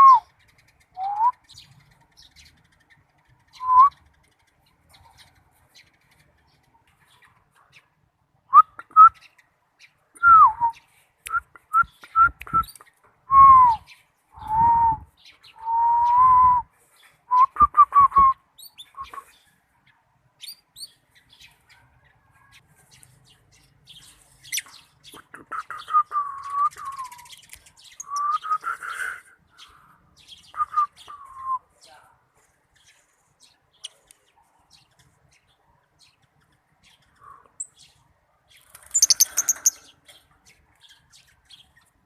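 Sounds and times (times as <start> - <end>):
faint high bird chirps: 0.0 - 19.6, 20.4 - 42.0
whistled notes: 1.0 - 1.4, 13.3 - 16.7
bird calls: 18.6 - 32.0, 32.7 - 42.0.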